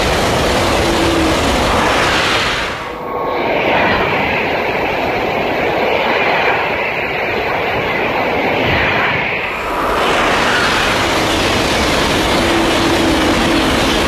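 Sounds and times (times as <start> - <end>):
high-speed train rushing past: 0.0 - 14.0.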